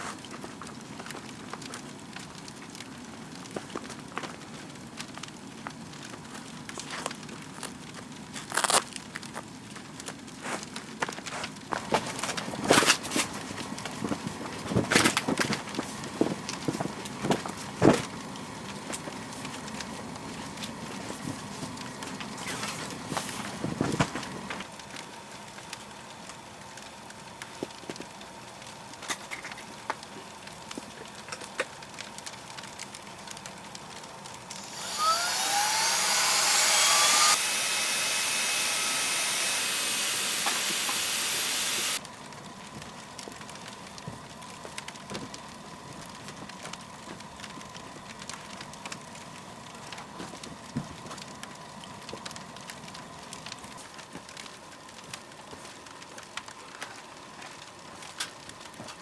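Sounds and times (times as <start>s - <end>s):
light clicks and crackles: 0.0s - 34.6s, 42.0s - 59.0s
small motorised blower rushing air: 34.5s - 42.0s.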